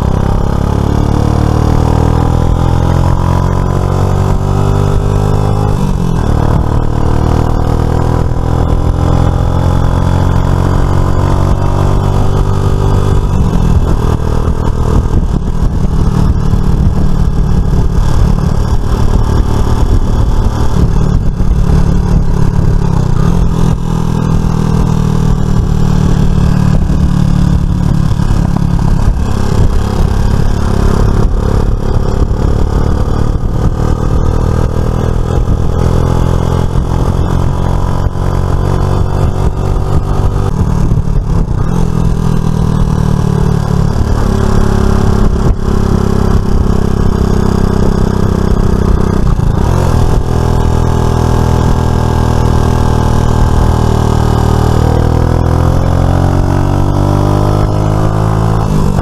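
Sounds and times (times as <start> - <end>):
wind and road noise: 0.0 - 59.0
scooter engine running: 4.0 - 8.4, 11.4 - 35.8, 38.5 - 54.2.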